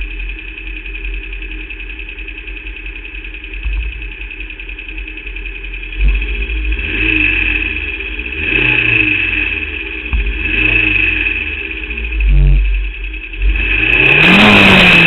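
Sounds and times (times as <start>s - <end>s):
engine knock: 0.0s - 15.0s
racing car engine running: 0.0s - 15.0s.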